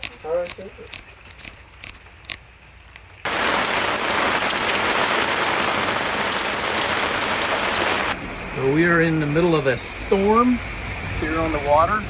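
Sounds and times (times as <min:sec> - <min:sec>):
heavy rain pouring: 0:03.3 - 0:08.8.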